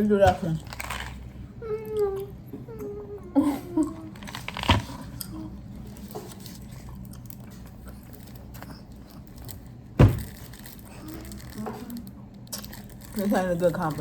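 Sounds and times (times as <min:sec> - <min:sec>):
steady low hum: 0:00.0 - 0:14.0
gum pack rustling: 0:00.3 - 0:01.4, 0:04.1 - 0:14.0.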